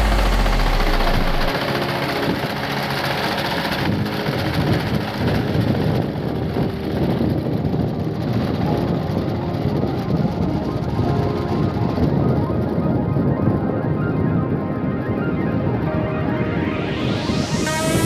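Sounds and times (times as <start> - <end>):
small tractor engine pulsing: 0.0 - 10.4.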